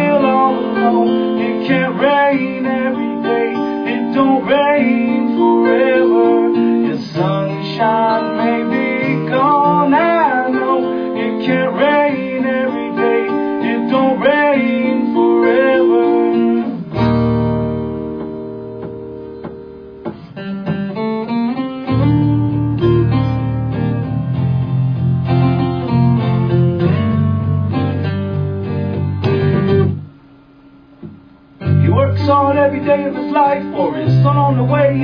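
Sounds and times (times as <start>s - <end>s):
acoustic guitars playing: 0.0s - 35.0s.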